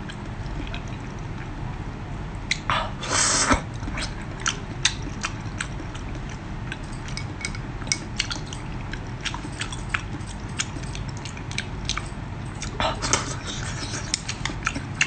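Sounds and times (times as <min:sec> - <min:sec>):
chewing and biting: 0:03.8 - 0:15.0.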